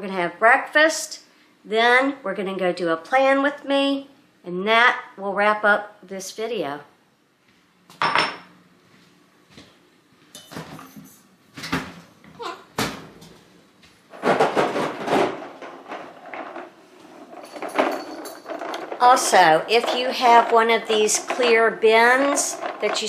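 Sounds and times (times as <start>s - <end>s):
kitchen utensils clattering: 10.4s - 11.9s, 14.1s - 23.0s
kitchen knocks and clicks: 14.1s - 23.0s.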